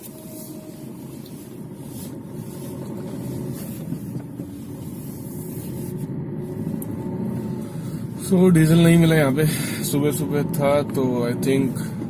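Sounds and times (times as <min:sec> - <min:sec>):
diesel car engine driving: 0:00.0 - 0:12.0.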